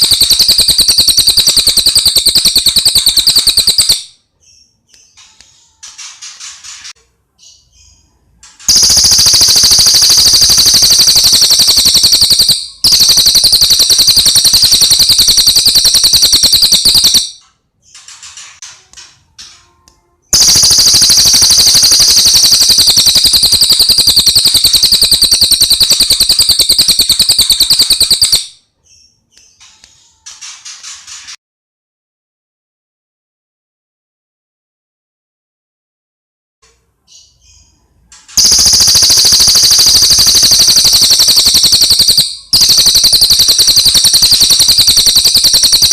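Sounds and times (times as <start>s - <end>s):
bird rapid high trills: 0.0s - 4.1s, 8.7s - 17.4s, 20.4s - 28.6s, 38.4s - 45.9s.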